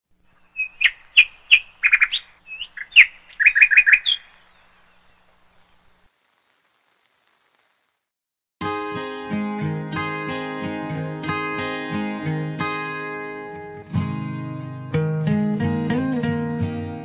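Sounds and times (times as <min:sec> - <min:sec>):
bird chirping: 0:00.1 - 0:06.1.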